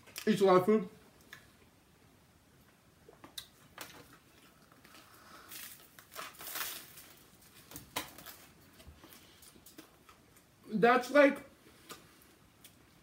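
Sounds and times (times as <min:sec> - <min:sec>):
person crunching and chewing food: 0:03.2 - 0:10.5.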